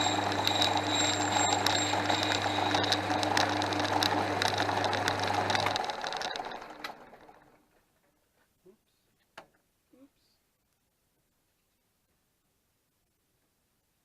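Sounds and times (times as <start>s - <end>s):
rapid irregular ticking: 0.0s - 7.6s
lathe motor hum: 0.0s - 7.7s
lathe spinning down: 0.0s - 7.8s.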